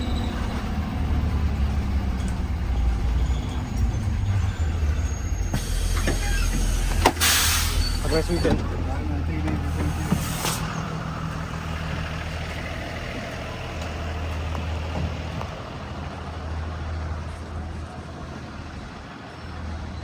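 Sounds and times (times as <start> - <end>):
bus engine humming: 0.0 - 20.0
road and cabin noise: 0.0 - 20.0
sharp hiss-like burst: 5.6 - 8.2.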